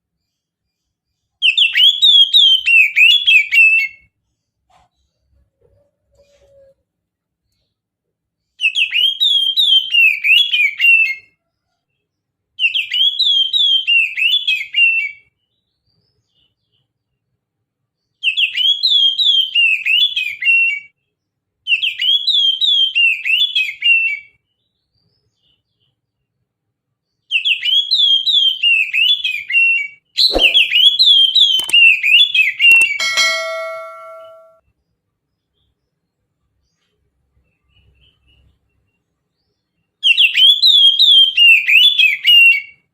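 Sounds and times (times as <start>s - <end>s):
bird singing whistled notes: 1.4s - 4.1s, 8.6s - 11.2s, 27.3s - 34.6s, 40.0s - 42.9s
sharp clicks: 31.4s - 31.8s, 32.7s - 33.2s.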